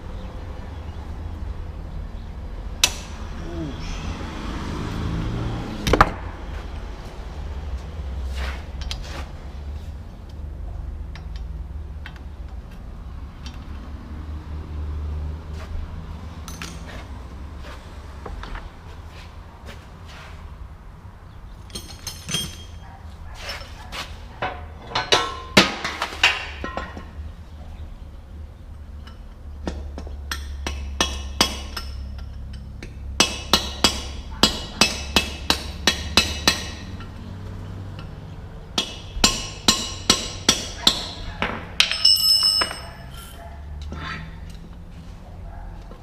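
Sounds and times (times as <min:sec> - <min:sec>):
hammer striking metal: 0:33.2 - 0:37.0, 0:38.8 - 0:41.2, 0:41.8 - 0:43.3.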